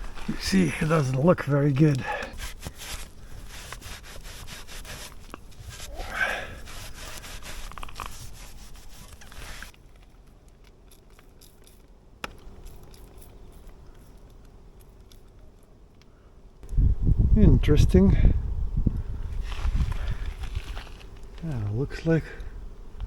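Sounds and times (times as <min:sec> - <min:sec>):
scraping on metal pipe: 0:01.8 - 0:09.7.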